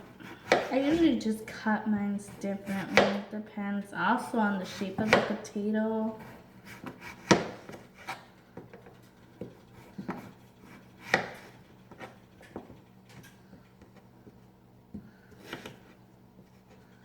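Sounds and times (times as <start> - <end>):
knife chopping on cutting board: 0.0 - 1.1, 2.3 - 3.3, 4.7 - 5.5, 6.2 - 8.7, 9.4 - 12.7.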